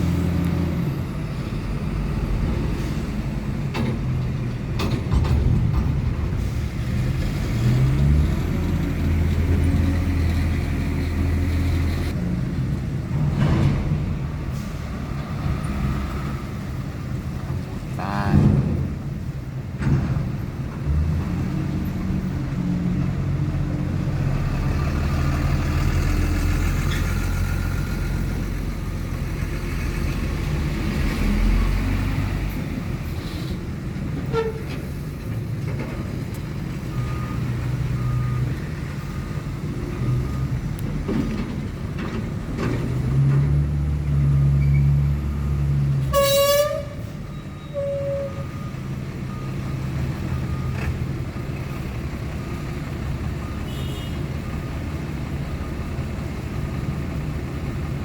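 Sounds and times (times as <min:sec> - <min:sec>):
vehicle horn: 0:46.1 - 0:48.5, 0:53.7 - 0:54.3.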